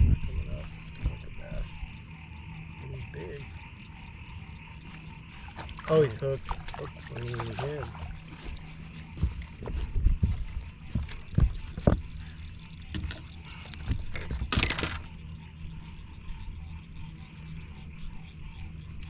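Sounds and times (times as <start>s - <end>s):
steady low hum: 0.0s - 19.0s
knocks and thumps on boat: 5.6s - 15.2s.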